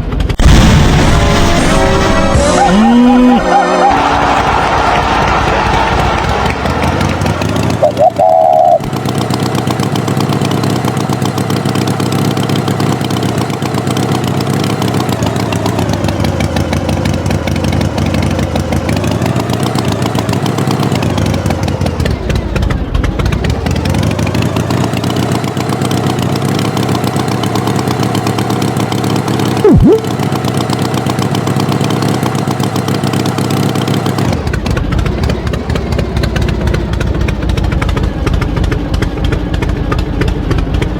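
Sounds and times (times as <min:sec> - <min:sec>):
tractor engine running: 0:00.0 - 0:40.9
short loud tone: 0:01.2 - 0:04.2, 0:29.6 - 0:30.1.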